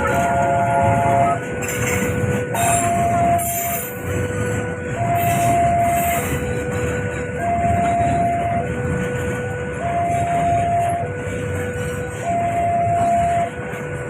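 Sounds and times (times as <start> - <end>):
train rumbling past: 0.0 - 14.0
level crossing alarm two tones: 2.5 - 6.7, 7.3 - 9.0, 9.6 - 11.2, 12.2 - 13.7.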